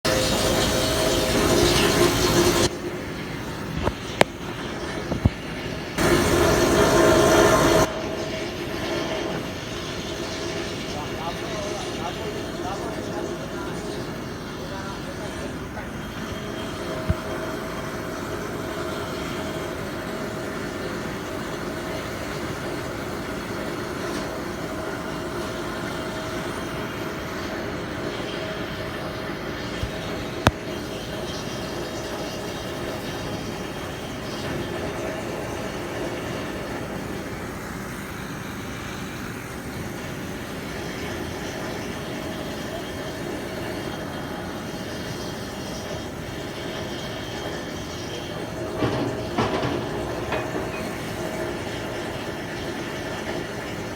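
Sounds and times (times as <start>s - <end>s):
ship engines droning: 0.0s - 53.9s.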